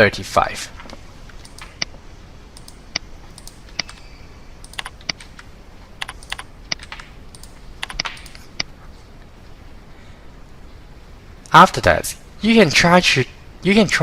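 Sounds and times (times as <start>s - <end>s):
keyboard key clicks: 1.3s - 1.9s, 2.6s - 4.0s, 4.6s - 8.7s.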